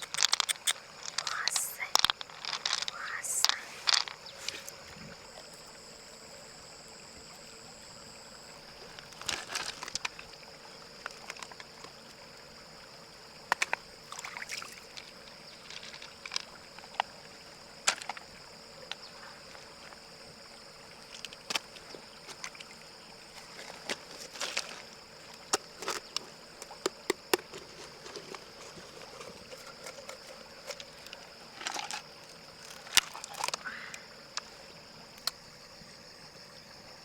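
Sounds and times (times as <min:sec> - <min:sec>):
sharp clicks and knocks: 0:00.0 - 0:04.2
water sloshing and trickling: 0:00.0 - 0:37.0
faint high hum: 0:01.0 - 0:16.0.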